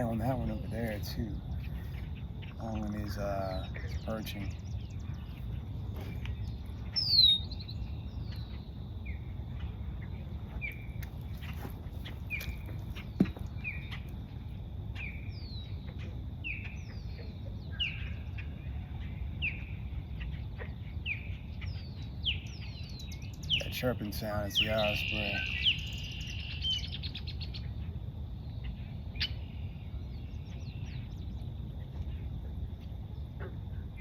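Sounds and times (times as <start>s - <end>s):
osprey whistled chirps: 0.0s - 9.3s, 21.0s - 27.7s.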